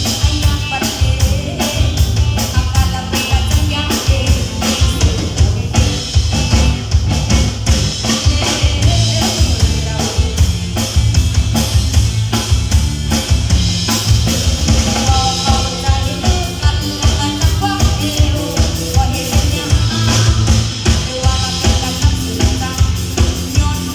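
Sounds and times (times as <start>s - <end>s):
bass: 0.0s - 23.9s
drum kit beat: 0.0s - 23.9s.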